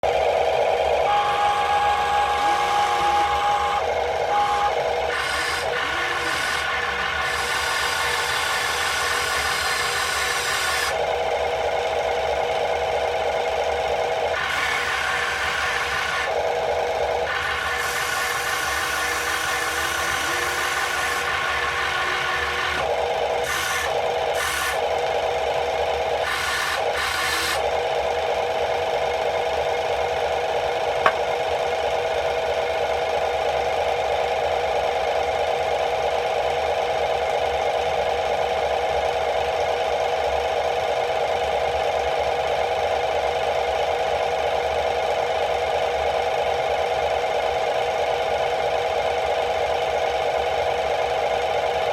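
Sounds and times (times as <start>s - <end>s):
small motor buzzing: 1.1s - 11.0s, 26.2s - 27.7s.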